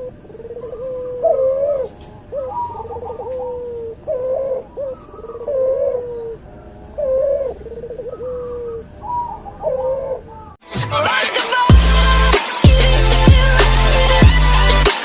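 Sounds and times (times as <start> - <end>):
dove cooing: 0.0 - 10.6.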